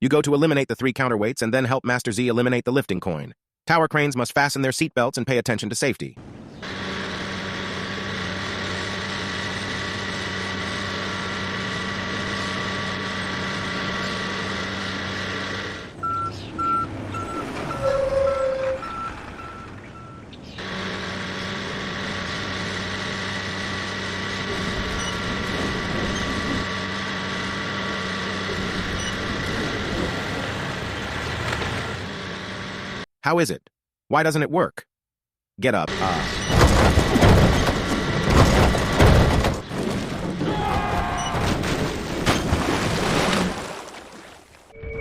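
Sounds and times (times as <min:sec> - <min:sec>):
heavy machinery engine drone: 0:06.2 - 0:33.1, 0:35.9 - 0:42.8
warning beeper short beeps: 0:16.0 - 0:20.2.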